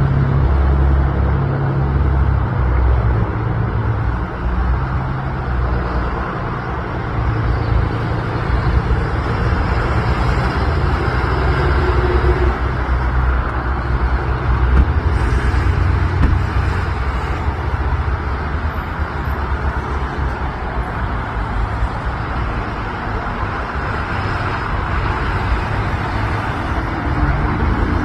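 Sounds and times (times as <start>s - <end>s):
roadside noise: 0.0s - 28.0s.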